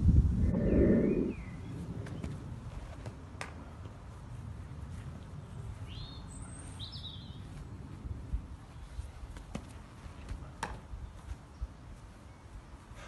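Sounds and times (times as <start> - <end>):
steady low rumble: 0.0 - 2.7
bird chirping: 0.4 - 2.3, 5.4 - 7.5.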